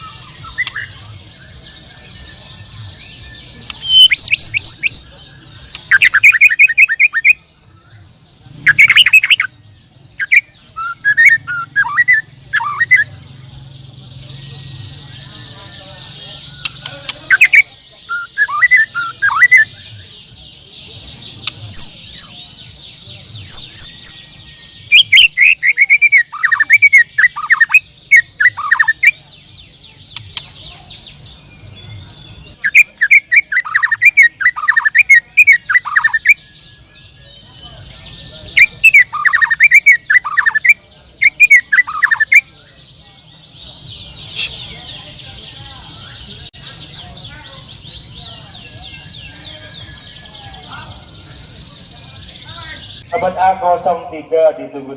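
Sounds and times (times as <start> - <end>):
bird chirping and whistling: 0.0 - 2.4, 3.1 - 7.5, 8.6 - 9.5, 10.1 - 13.1, 16.4 - 19.9, 21.4 - 22.5, 23.4 - 29.2, 32.5 - 36.9, 38.6 - 42.5
songbirds chattering: 0.0 - 54.9.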